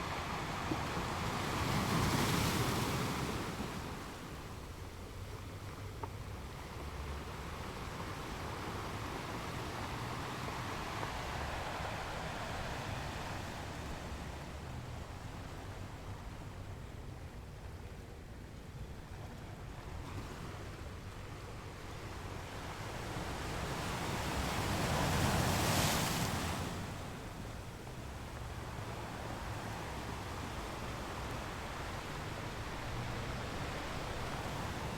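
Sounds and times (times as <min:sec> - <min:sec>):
ocean surf washing: 0:00.0 - 0:17.4, 0:19.7 - 0:34.9.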